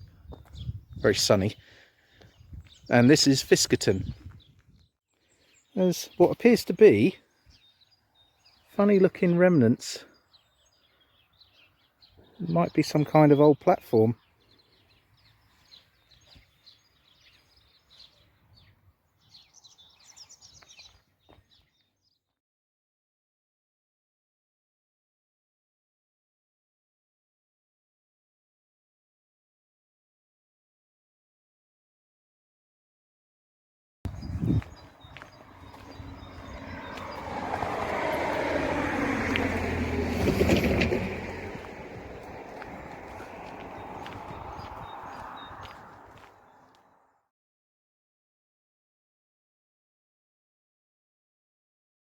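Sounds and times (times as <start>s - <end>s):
birds chirping: 0.0s - 22.4s, 34.1s - 47.0s
diesel train passing: 35.0s - 45.9s.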